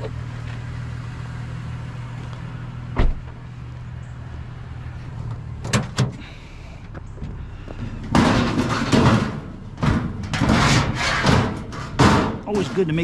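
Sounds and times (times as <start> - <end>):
vehicle engine idling: 0.0 - 8.5
heavy thump: 3.0 - 3.3.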